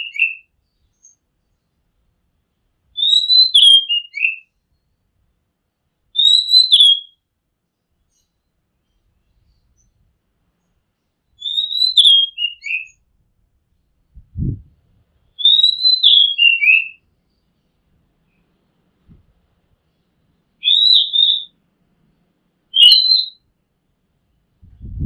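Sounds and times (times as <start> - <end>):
bird singing whistled phrases: 0.0 - 1.2, 3.0 - 4.4, 6.2 - 7.2, 11.4 - 13.0, 15.4 - 17.0, 20.6 - 21.6, 22.7 - 23.4.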